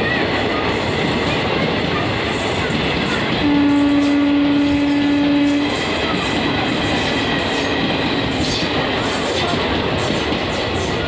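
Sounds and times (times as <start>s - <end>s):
train running on rails: 0.0s - 11.0s
train horn: 3.4s - 6.0s.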